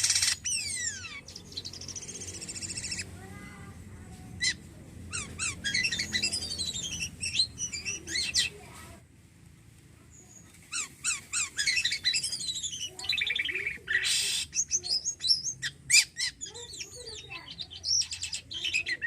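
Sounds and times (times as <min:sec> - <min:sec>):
starling chirps and whistles: 0:00.0 - 0:03.1, 0:04.5 - 0:08.6, 0:10.3 - 0:19.0.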